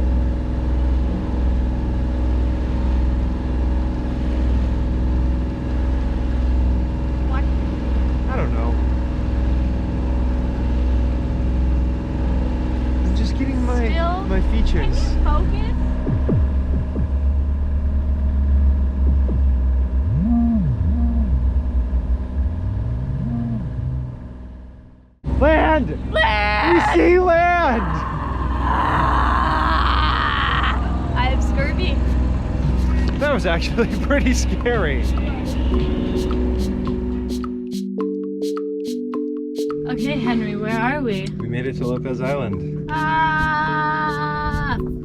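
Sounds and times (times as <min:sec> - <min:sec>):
boat engine humming: 0:00.0 - 0:45.0
low moaning swooping tone: 0:12.2 - 0:24.6, 0:26.0 - 0:37.3.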